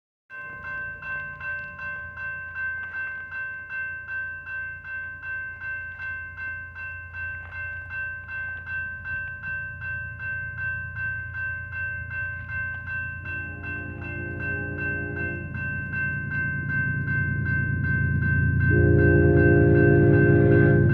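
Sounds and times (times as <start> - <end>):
railroad crossing bell ringing: 0.3 - 20.9
freight train rumble: 4.7 - 20.9.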